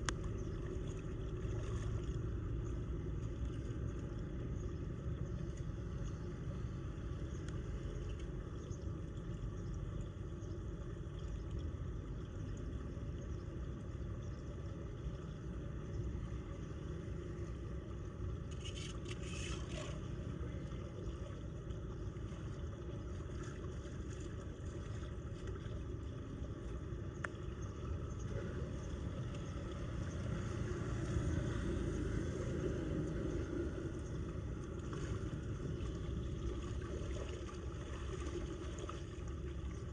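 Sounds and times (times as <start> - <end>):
water rushing into storm drain: 28.3 - 39.9.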